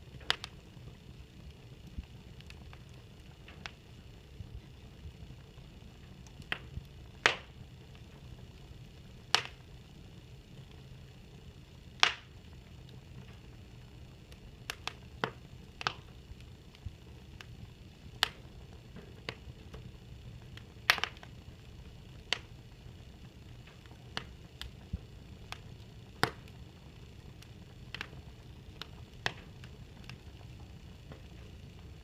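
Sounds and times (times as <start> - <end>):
faint low rumble: 0.0 - 32.0
fire crackling and popping: 0.0 - 32.0.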